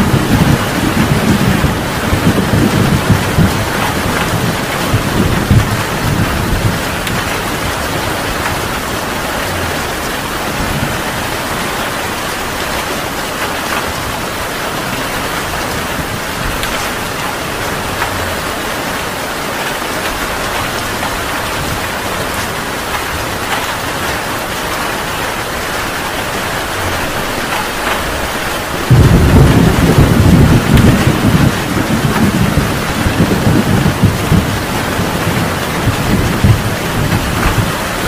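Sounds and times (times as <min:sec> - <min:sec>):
deep rumbling thunder: 0:00.0 - 0:12.2, 0:26.6 - 0:38.0
heavy rain pouring: 0:00.0 - 0:38.0.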